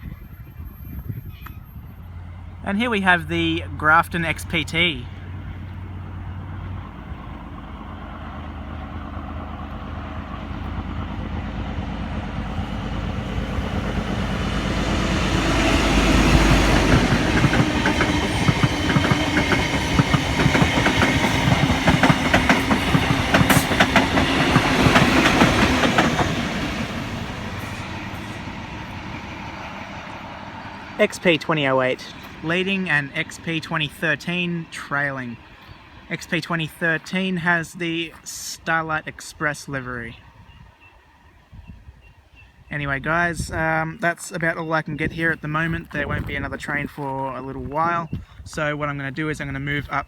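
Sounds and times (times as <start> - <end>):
diesel train engine rumble: 0.0 - 50.0
train wheels clattering over rail joints: 9.4 - 29.0.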